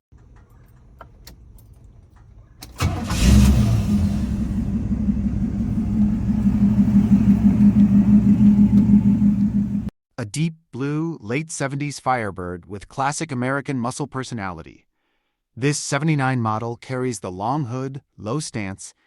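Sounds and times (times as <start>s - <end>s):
car engine starting and idling: 0.1s - 9.9s.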